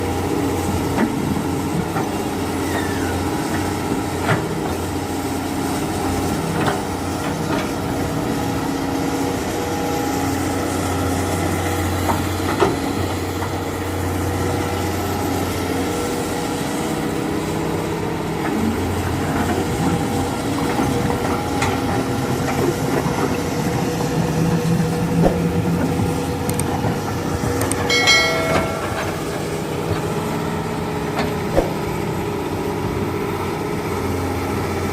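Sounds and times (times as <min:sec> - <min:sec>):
truck engine running: 0:13.1 - 0:34.9.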